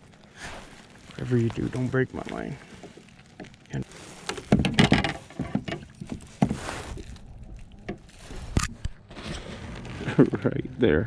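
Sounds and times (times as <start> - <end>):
knocks and bumps on kayak: 4.2 - 6.9.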